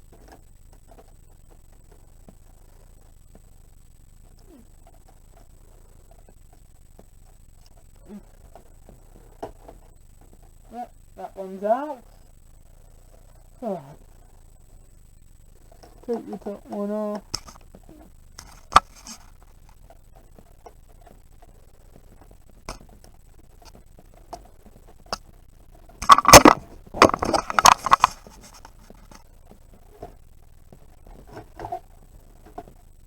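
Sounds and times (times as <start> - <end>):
tools scraping on plastic casing: 26.0 - 29.2.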